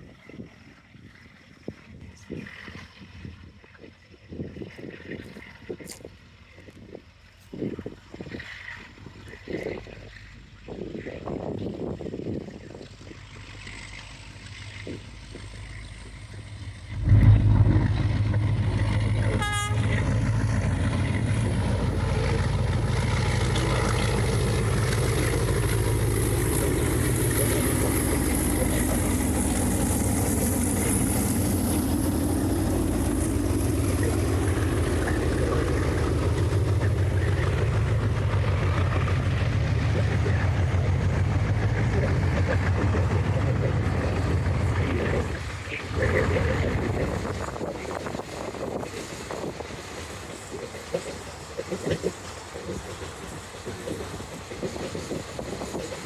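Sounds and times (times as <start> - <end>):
train rumbling on rails: 2.3 - 56.0
train horn toot: 16.9 - 21.2.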